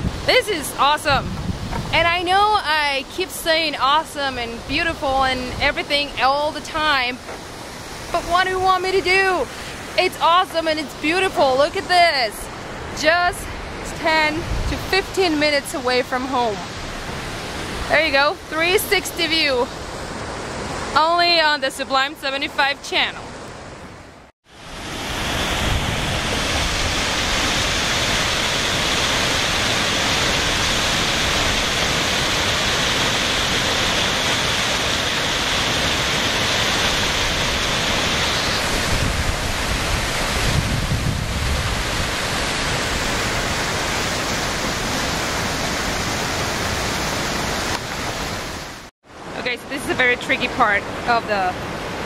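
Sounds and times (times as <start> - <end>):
wind buffeting microphone: 0.0 - 3.1, 11.7 - 15.8, 24.7 - 48.4
water rushing from dam: 0.0 - 23.5, 24.5 - 52.0.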